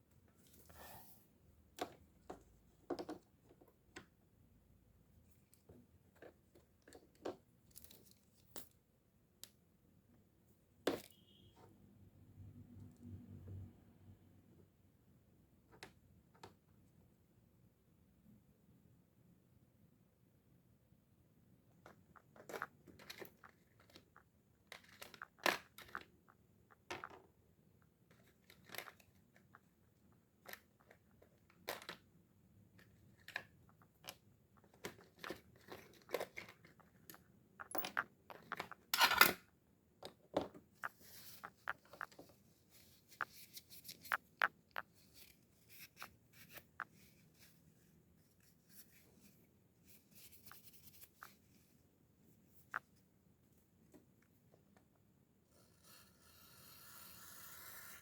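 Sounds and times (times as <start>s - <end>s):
light clicks and knocks of metal parts: 32.8s - 39.4s
soft rustling: 40.8s - 52.7s.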